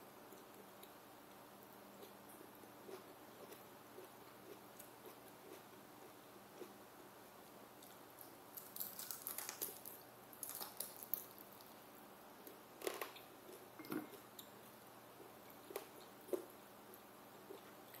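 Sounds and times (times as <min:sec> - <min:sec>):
crunching crisp fried food: 0:07.8 - 0:11.8.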